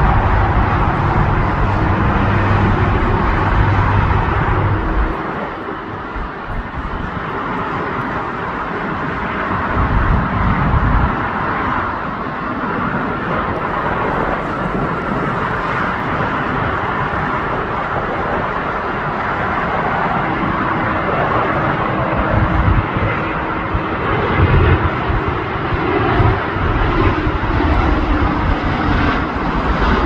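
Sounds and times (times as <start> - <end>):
low rumbles: 0.0 - 18.7
jet engines running: 0.0 - 30.0.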